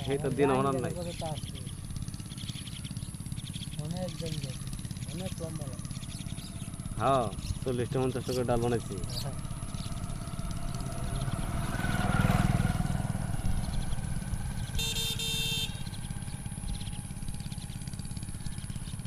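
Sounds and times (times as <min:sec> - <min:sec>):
vehicle engine rumbling: 0:00.0 - 0:19.0
short high horn honks: 0:14.7 - 0:15.9.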